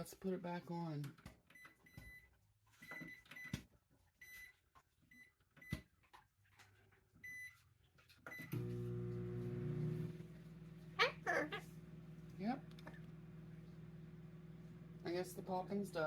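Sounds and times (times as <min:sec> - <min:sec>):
microwave keypad beeps: 0:07.2 - 0:07.6, 0:08.3 - 0:08.6
microwave oven humming: 0:08.4 - 0:16.0.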